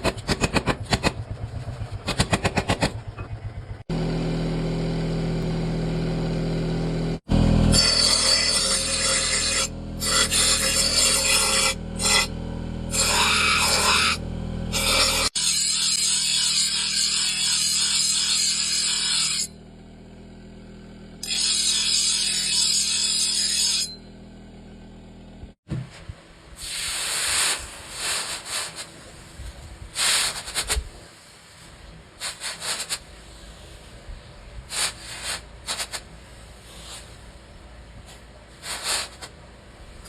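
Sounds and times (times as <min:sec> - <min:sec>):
motor hum: 0:00.5 - 0:09.0, 0:09.6 - 0:15.3, 0:23.9 - 0:25.8
grinding metal: 0:07.3 - 0:19.6, 0:21.2 - 0:24.1
metal being filed: 0:07.7 - 0:12.3, 0:12.9 - 0:19.5, 0:21.2 - 0:24.0.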